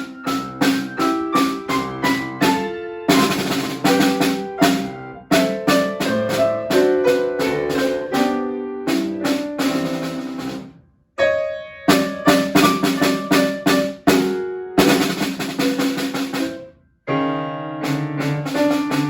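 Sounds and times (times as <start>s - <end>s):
snare drum strokes and rolls: 0.0s - 10.7s, 11.9s - 16.7s, 17.8s - 19.0s.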